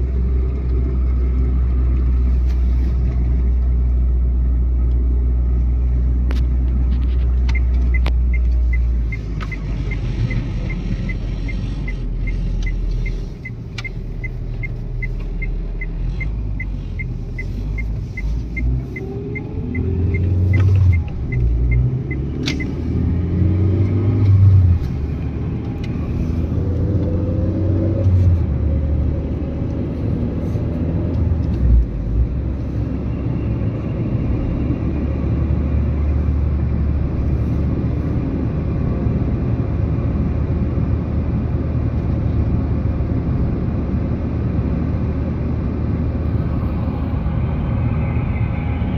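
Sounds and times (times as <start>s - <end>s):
car engine accelerating: 0.0s - 39.4s, 42.0s - 48.9s
road rumble: 0.0s - 48.9s
light regular ticking: 7.4s - 22.8s.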